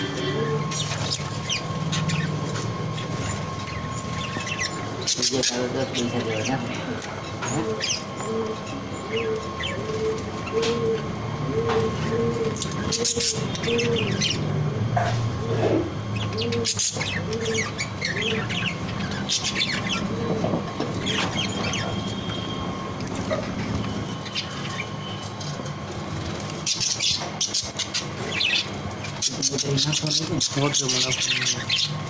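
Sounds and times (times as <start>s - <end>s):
pigeons cooing: 0.0s - 32.0s.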